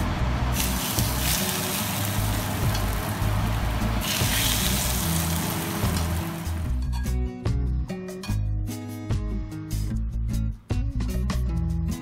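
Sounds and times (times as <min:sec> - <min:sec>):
background music: 0:00.0 - 0:12.0
hot oil sizzling: 0:00.5 - 0:06.8.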